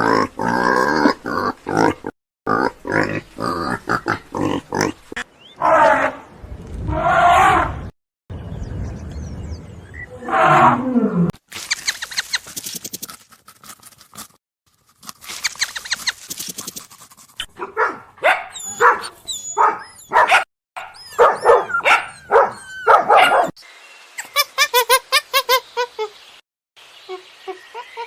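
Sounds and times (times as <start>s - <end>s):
dog barking and yelping: 17.4s - 23.6s.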